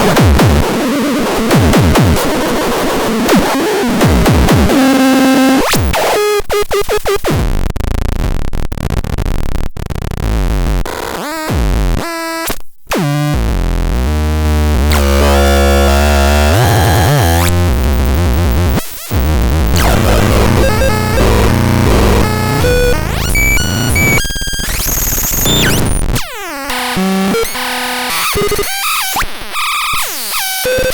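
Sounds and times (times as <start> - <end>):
harsh buzzy synthesizer tones: 12.9 - 28.6
deep bass drone: 13.4 - 24.2.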